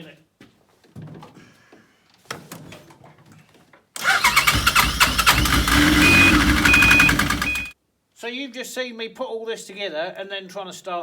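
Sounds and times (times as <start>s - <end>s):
snowmobile engine running loudly: 5.2s - 7.7s
short high beeps: 5.8s - 7.7s.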